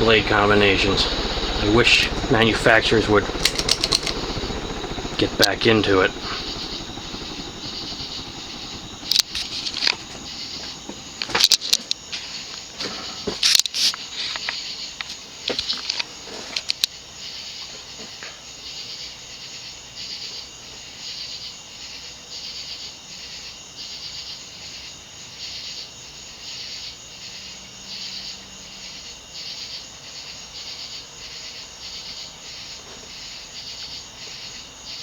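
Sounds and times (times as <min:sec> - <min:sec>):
ceiling fan pulsing hiss: 0:00.0 - 0:14.3.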